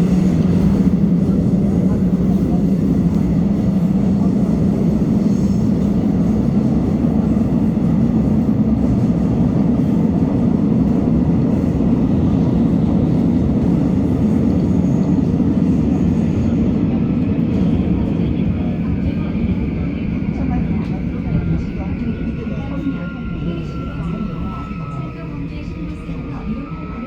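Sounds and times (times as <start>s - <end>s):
subway train rumble: 0.0s - 27.0s.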